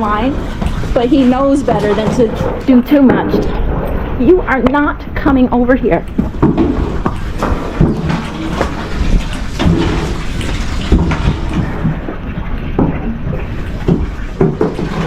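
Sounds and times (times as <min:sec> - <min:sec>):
knocks and clatter: 0:00.0 - 0:05.3, 0:06.0 - 0:15.0.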